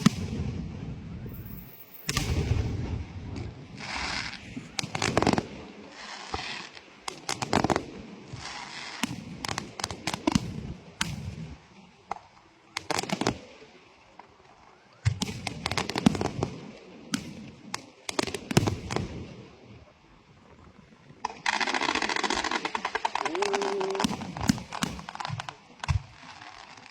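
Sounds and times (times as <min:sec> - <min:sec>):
fireworks bangs and cracks: 0:00.0 - 0:13.5, 0:15.0 - 0:19.4, 0:21.2 - 0:26.9
fireworks crackling hiss: 0:00.0 - 0:14.5, 0:21.1 - 0:26.9.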